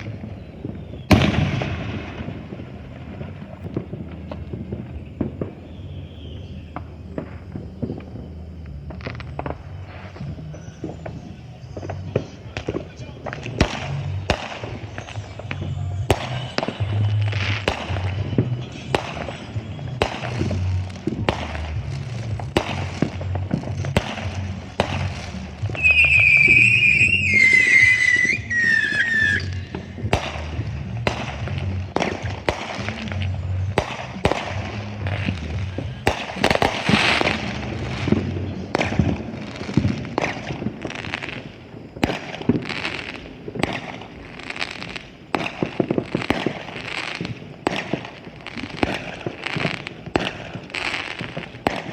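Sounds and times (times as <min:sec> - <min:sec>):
fireworks bangs and crackles: 0:00.0 - 0:51.9
high falling whistle: 0:25.8 - 0:29.9.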